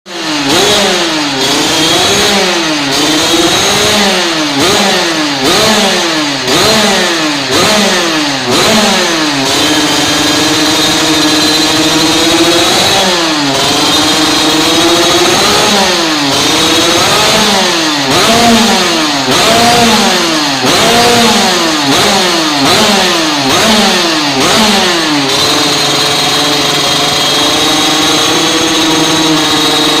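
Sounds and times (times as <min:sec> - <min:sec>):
two-stroke motorcycle engine revving: 0:00.1 - 0:30.0.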